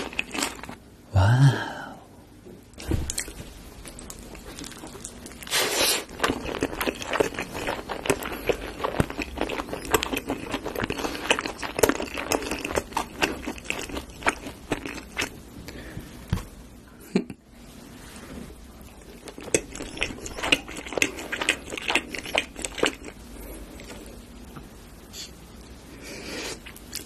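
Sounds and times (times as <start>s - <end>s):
chewing: 0.0s - 0.8s, 3.1s - 15.4s, 18.8s - 24.3s.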